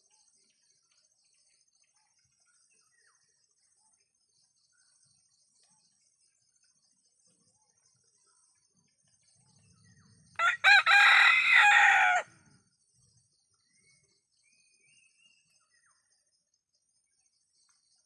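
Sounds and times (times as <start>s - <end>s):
rooster crowing: 10.4s - 12.3s.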